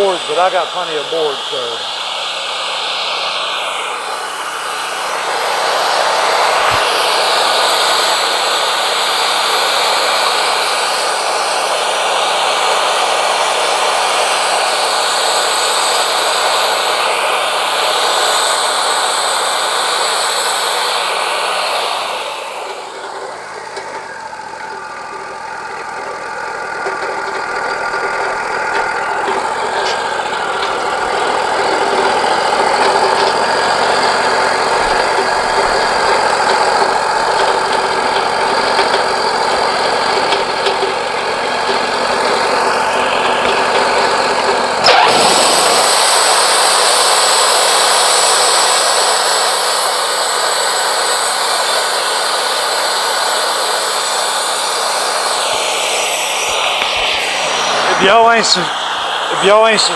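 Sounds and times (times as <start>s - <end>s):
high hiss: 0.0s - 47.8s, 54.7s - 59.9s
sawmill engine and band saw: 0.0s - 59.9s.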